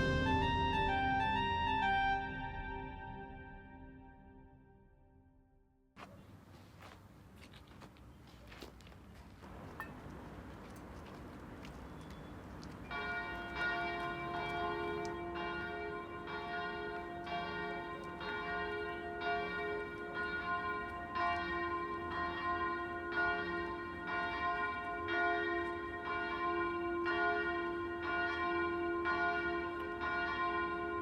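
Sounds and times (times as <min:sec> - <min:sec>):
church bells ringing: 0:09.5 - 0:31.0.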